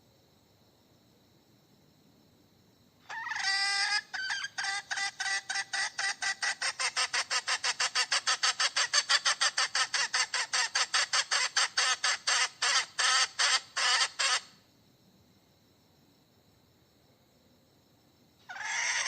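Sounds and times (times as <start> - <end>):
hen cackling: 3.0 - 14.6, 18.4 - 19.0.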